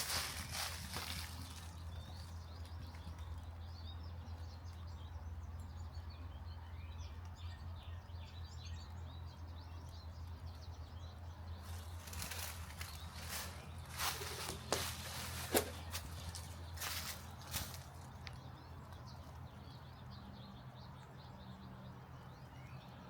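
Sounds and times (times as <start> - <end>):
steady low rumble: 0.0 - 6.5, 9.6 - 19.4
small birds chirping: 0.0 - 23.0.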